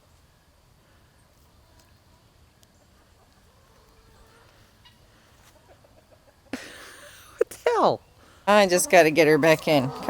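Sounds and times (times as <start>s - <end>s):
faint chicken clucking: 0.0s - 7.3s.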